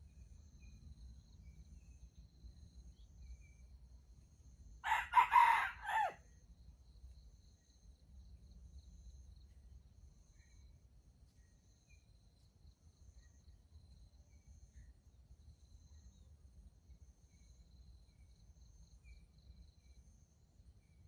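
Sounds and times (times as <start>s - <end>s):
rooster crowing: 4.8s - 6.2s.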